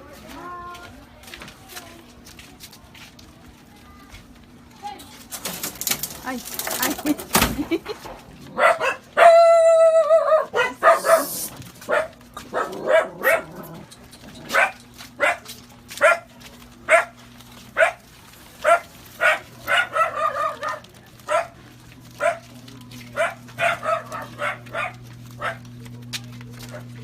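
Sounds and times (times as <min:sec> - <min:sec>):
dog barking: 0:08.5 - 0:13.8, 0:14.5 - 0:16.3, 0:16.9 - 0:17.2, 0:17.8 - 0:21.6, 0:22.2 - 0:22.5, 0:23.1 - 0:25.7.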